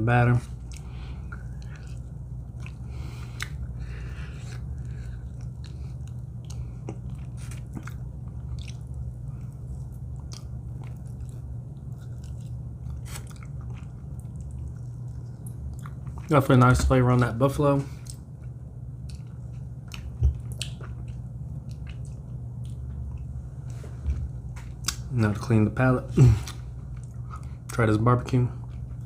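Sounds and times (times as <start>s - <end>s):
low hum: 0.0s - 29.0s
person chewing crunchy food: 0.4s - 16.7s, 17.9s - 25.1s.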